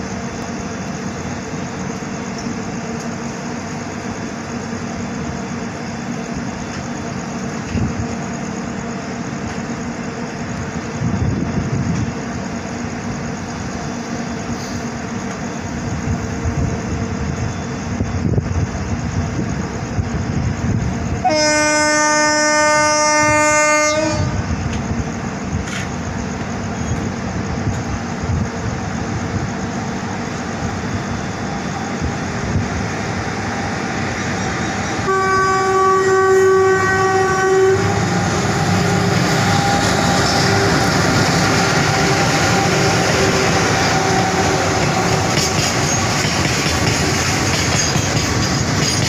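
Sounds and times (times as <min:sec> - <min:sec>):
train rumbling past: 0:00.0 - 0:49.0
higher-pitched horn blast: 0:21.2 - 0:24.5, 0:35.0 - 0:40.8
locomotive horn blast: 0:21.2 - 0:24.5, 0:35.0 - 0:40.8.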